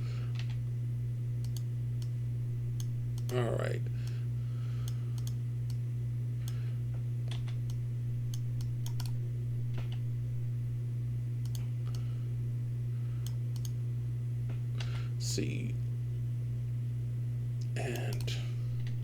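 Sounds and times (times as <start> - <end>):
low electrical hum: 0.0 - 19.0
keyboard and mouse clicks: 1.4 - 2.1, 4.9 - 5.8, 7.3 - 9.2, 11.4 - 12.0, 13.5 - 13.8.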